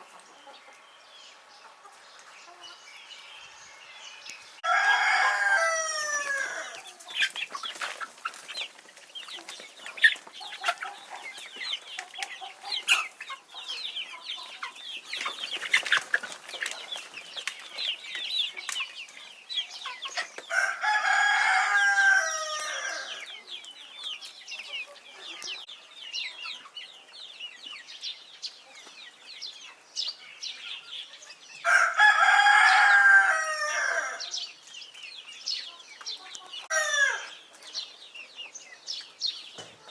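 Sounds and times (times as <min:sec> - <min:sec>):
chickens clucking: 0:00.0 - 0:39.9
rooster crowing: 0:04.6 - 0:06.8, 0:20.5 - 0:23.3, 0:31.6 - 0:34.3, 0:36.7 - 0:37.4.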